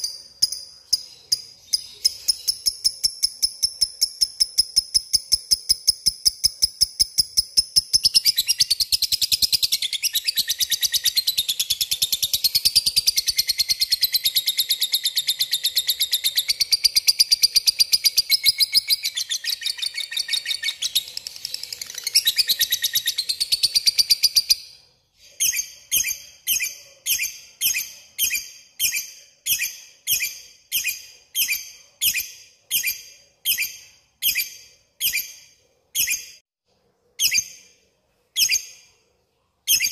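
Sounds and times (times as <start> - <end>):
lovebird chattering trill: 0.0 - 11.9.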